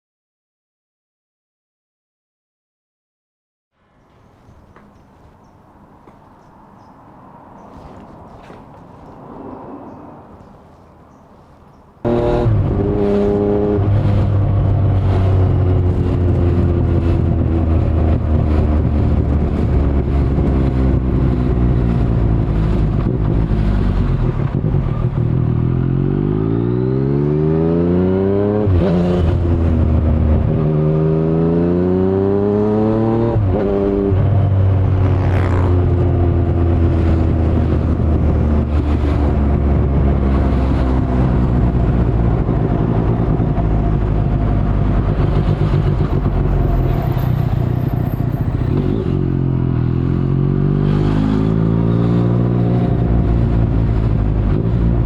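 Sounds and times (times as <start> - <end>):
motorcycle engine revving: 12.0 - 55.0.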